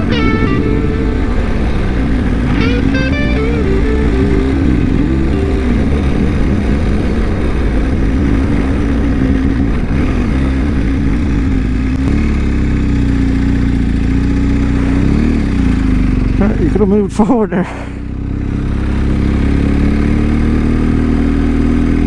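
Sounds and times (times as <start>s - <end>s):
wind noise: 0.0s - 12.0s
motorcycle engine running: 0.0s - 17.1s, 18.0s - 22.0s.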